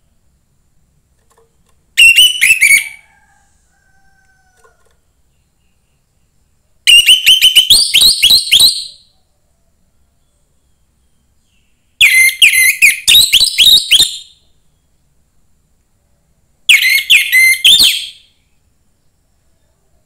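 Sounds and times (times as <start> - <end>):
thrush singing rapid shrill notes: 2.0 - 3.0, 16.7 - 18.3.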